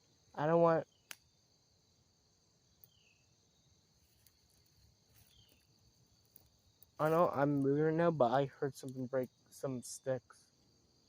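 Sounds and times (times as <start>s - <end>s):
crickets chorus: 0.0s - 11.0s
tiny ticks: 1.0s - 1.2s.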